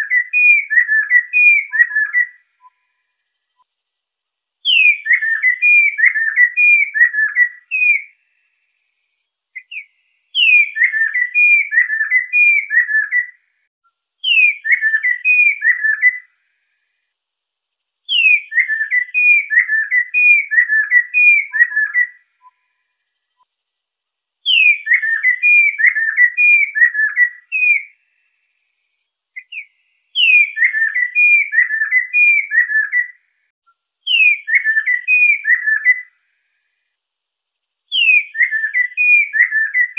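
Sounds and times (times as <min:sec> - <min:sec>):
bird singing whistled phrases: 0:00.0 - 0:03.0, 0:04.6 - 0:08.3, 0:09.6 - 0:13.4, 0:14.2 - 0:16.3, 0:18.1 - 0:22.8, 0:24.4 - 0:28.0, 0:29.4 - 0:33.2, 0:34.0 - 0:36.2, 0:37.9 - 0:39.9.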